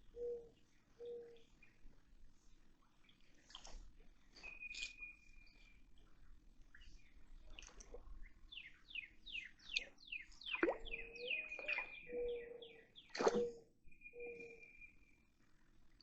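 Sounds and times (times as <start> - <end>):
birds singing: 0.0 - 1.8, 8.2 - 15.2.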